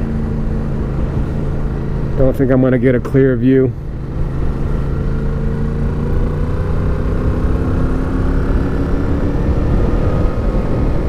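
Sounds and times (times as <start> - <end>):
motorcycle engine pulling uphill: 0.0 - 11.0
wind rumble on microphone: 5.6 - 11.0.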